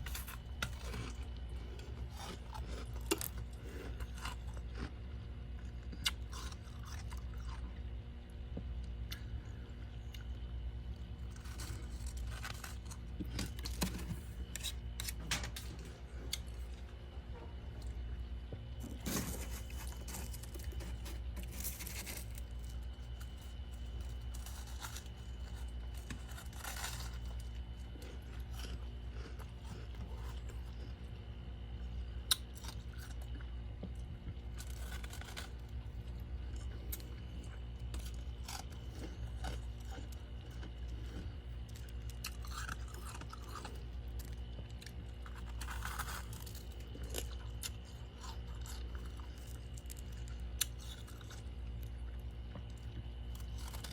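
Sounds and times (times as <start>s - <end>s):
crunching and chewing ice: 0.0s - 53.9s
steady low hum: 0.0s - 53.9s.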